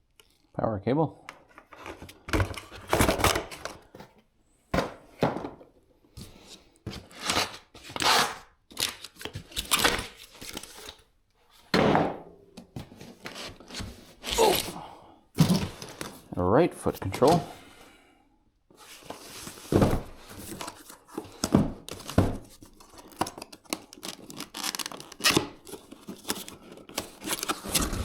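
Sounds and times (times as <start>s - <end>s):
cardboard and plastic rustling: 1.4s - 8.0s, 12.6s - 14.8s, 15.4s - 16.4s, 18.7s - 28.0s.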